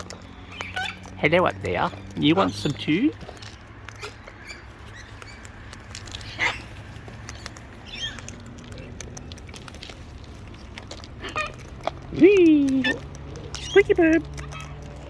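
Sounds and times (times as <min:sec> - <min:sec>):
beaks and feet clicking: 0:00.0 - 0:15.0
parrot squawk: 0:00.5 - 0:01.1.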